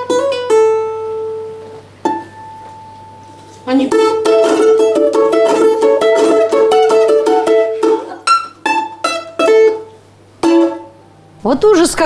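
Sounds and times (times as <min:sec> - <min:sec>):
balalaika folk melody: 0:00.0 - 0:11.3
balalaika chords struck: 0:03.9 - 0:11.4.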